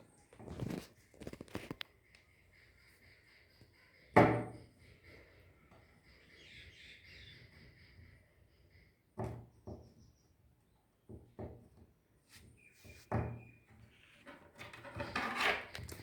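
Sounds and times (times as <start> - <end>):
tools clacking on a work surface: 14.2 - 16.0.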